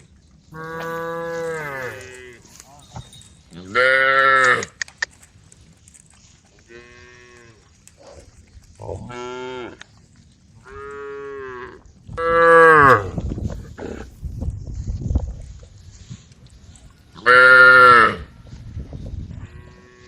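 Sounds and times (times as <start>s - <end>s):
cows mooing: 0.5s - 2.7s, 3.5s - 4.8s, 6.6s - 8.2s, 8.8s - 9.9s, 10.6s - 14.1s, 17.2s - 18.3s.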